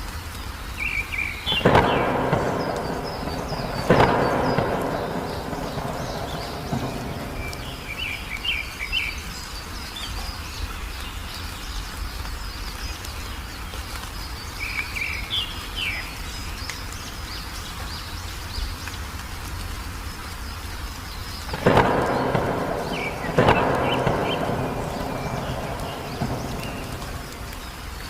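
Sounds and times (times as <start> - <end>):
songbirds chirping: 0.1 - 28.0
high chirps: 1.5 - 9.0, 21.5 - 28.0
low rumble: 1.6 - 8.8, 21.7 - 28.0.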